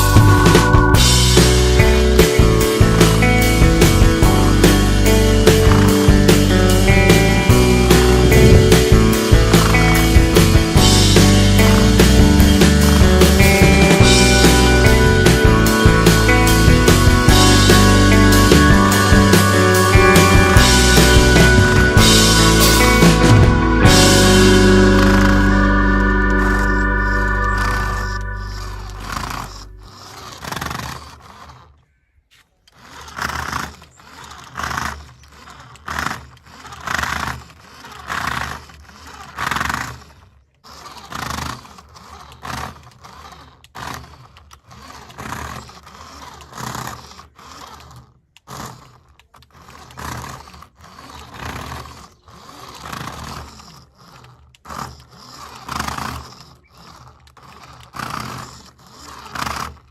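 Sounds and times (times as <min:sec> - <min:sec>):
toy car electric motor whirring: 0:00.0 - 0:23.5, 0:26.3 - 0:59.9.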